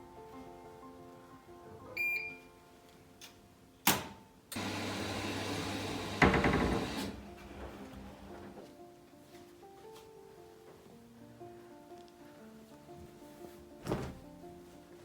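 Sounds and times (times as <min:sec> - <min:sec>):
microwave keypad beep: 0:02.0 - 0:02.5
microwave humming: 0:04.5 - 0:08.2
microwave door shutting: 0:06.1 - 0:07.2.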